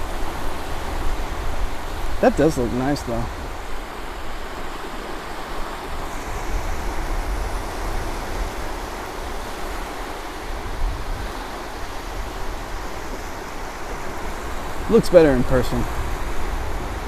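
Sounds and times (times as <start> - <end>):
surf washing on beach: 0.0 - 17.0
wind rumbling on microphone: 0.0 - 17.0.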